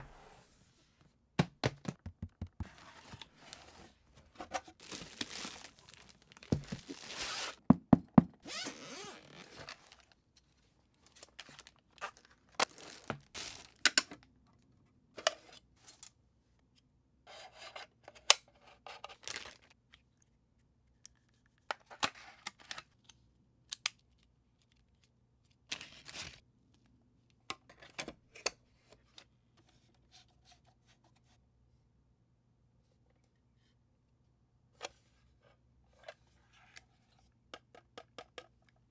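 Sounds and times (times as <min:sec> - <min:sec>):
packaging tearing and crinkling: 0:04.8 - 0:07.6, 0:08.5 - 0:10.1, 0:11.2 - 0:13.9, 0:19.2 - 0:19.7.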